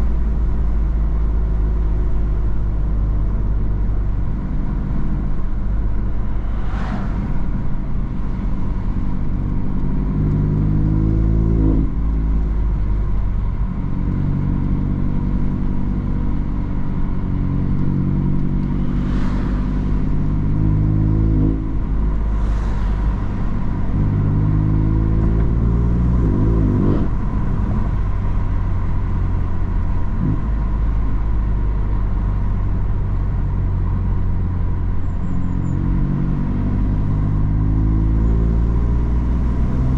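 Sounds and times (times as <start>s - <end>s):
car engine accelerating hard: 2.4s - 39.9s
rushes of air noise: 5.9s - 9.4s, 18.7s - 25.3s.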